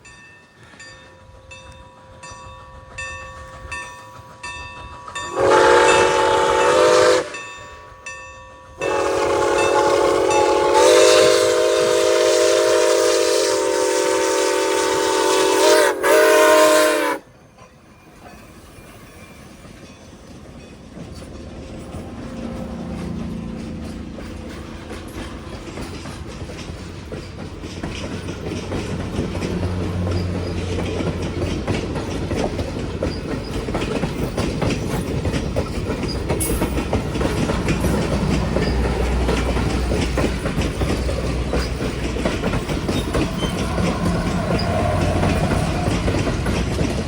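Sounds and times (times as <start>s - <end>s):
crossing bell ringing: 0.0s - 11.0s, 33.2s - 46.9s
train rumble: 0.0s - 47.0s
locomotive air horn: 5.3s - 7.4s, 8.8s - 17.2s, 43.2s - 46.2s.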